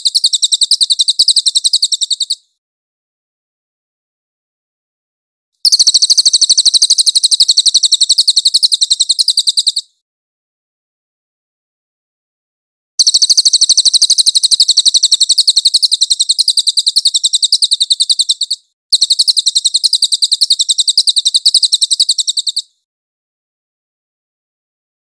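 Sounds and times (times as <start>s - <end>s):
jay rapid rattling call: 5.6s - 9.9s, 13.0s - 22.8s.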